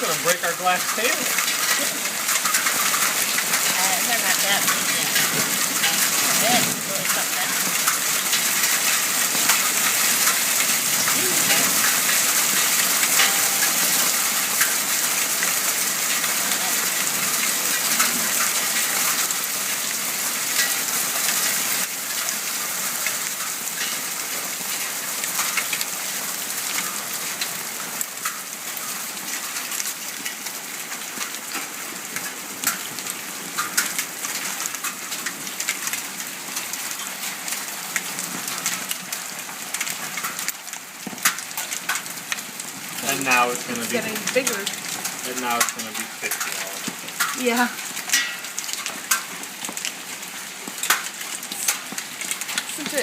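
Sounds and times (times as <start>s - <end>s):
heavy rain hissing: 0.0s - 29.7s, 41.8s - 48.0s, 49.4s - 53.0s
hailstones clicking on hard surfaces: 0.0s - 53.0s.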